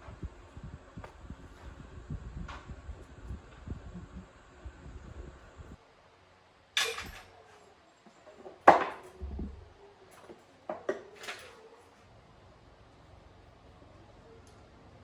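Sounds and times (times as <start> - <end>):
metal tools knocking and clinking: 6.8 - 7.3, 8.4 - 11.6
low thud: 9.2 - 9.7.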